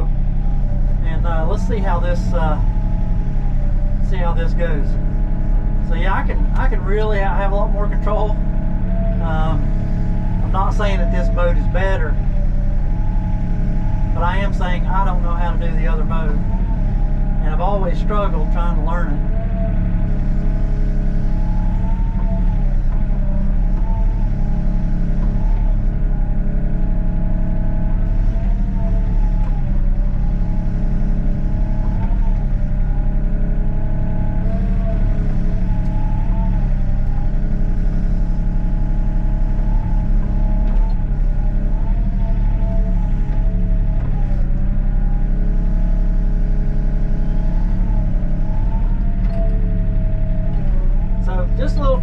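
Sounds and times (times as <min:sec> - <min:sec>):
excavator diesel engine: 0:00.0 - 0:52.0
hydraulic whine: 0:00.0 - 0:52.0.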